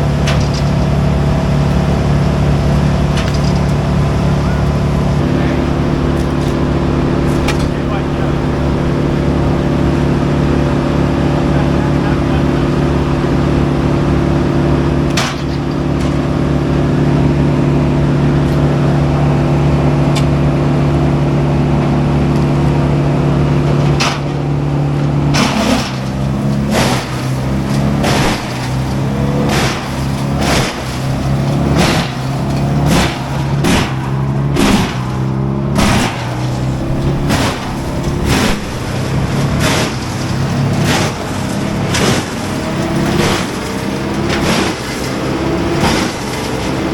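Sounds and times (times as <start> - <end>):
diesel machinery running: 0.0 - 46.9
sharp knocks: 26.7 - 45.1.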